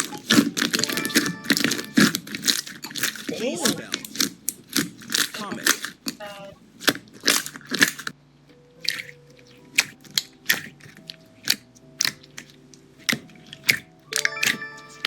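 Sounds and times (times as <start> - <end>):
keyboard keys clicking: 0.0 - 4.2, 9.8 - 15.0.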